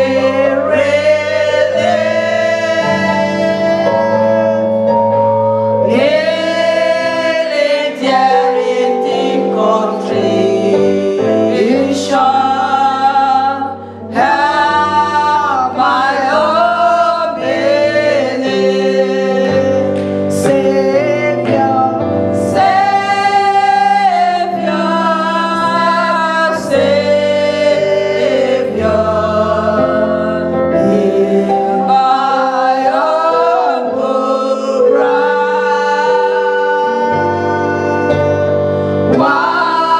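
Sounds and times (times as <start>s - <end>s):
gospel choir singing: 0.0s - 39.9s
instrumental backing: 0.0s - 39.9s.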